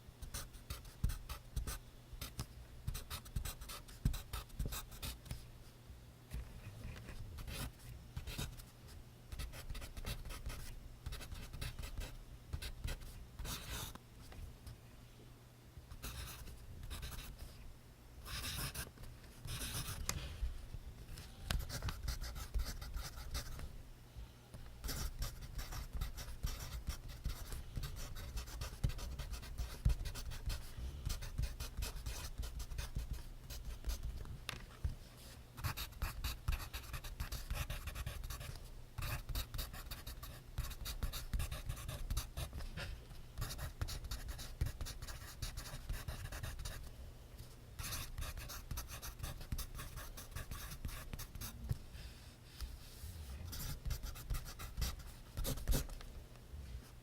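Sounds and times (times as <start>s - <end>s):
pencil writing on paper: 16.0s - 17.4s, 18.3s - 18.8s, 19.4s - 20.0s, 21.5s - 23.6s, 24.8s - 34.1s, 35.6s - 42.7s, 43.4s - 46.8s, 47.8s - 51.6s, 53.5s - 55.9s.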